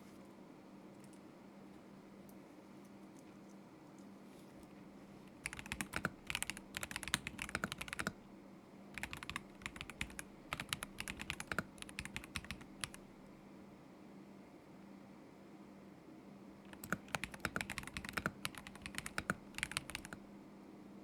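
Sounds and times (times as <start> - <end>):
mechanical keyboard typing: 5.3 - 8.2, 9.0 - 13.1, 16.7 - 20.2.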